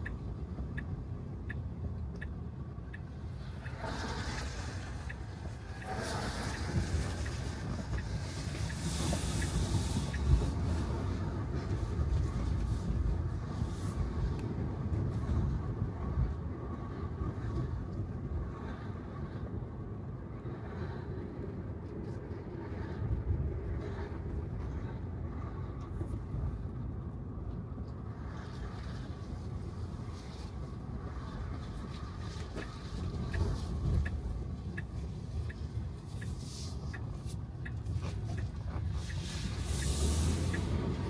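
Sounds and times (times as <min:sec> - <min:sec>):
tyre rumble on wet road: 0:03.1 - 0:18.4, 0:28.2 - 0:41.0.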